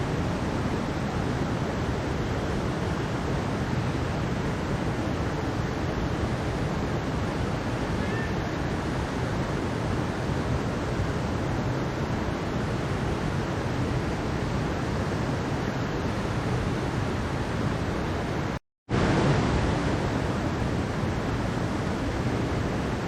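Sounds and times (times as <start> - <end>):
water rushing in a stream: 0.0 - 23.0.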